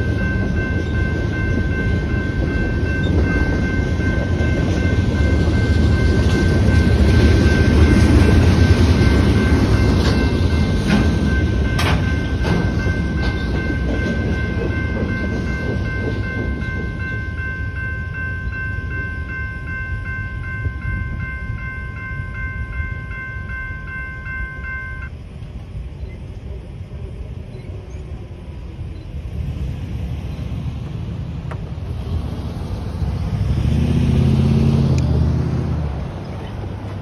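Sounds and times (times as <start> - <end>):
wheels clacking over rail joints: 0.0 - 23.6
crossing bell ringing: 0.0 - 25.3
freight train wheels rumbling: 0.0 - 37.0.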